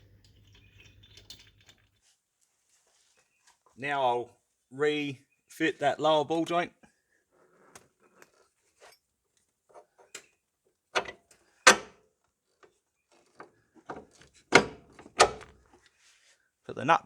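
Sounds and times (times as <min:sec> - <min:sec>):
metal tools clinking: 0:00.0 - 0:02.1.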